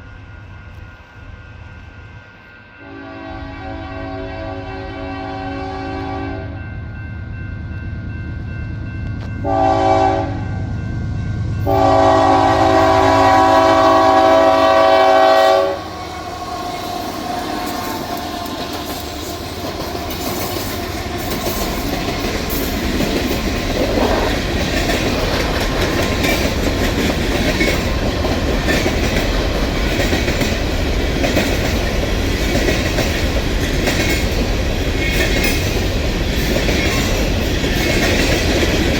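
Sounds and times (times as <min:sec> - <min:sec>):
locomotive air horn blasts: 0:02.8 - 0:06.6, 0:09.4 - 0:10.6, 0:11.6 - 0:18.6
rail clatter: 0:13.2 - 0:38.9.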